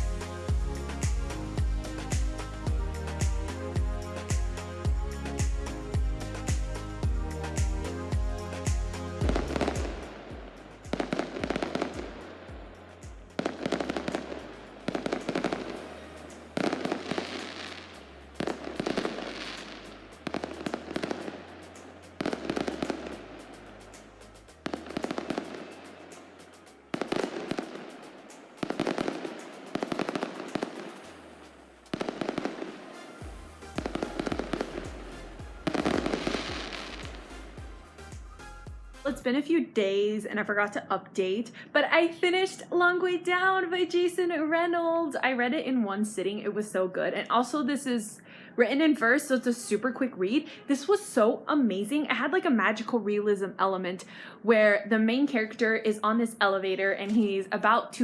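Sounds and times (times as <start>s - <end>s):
background music with bass: 0.0s - 39.3s
sharp crackling bangs: 8.7s - 37.3s.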